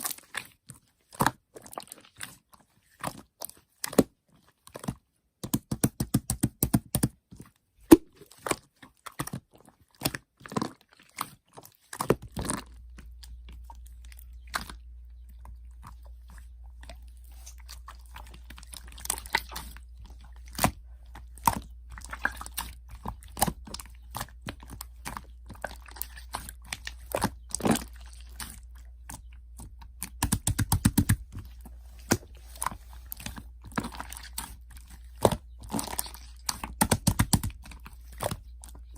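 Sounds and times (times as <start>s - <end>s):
steady low hum: 29.4s - 36.1s.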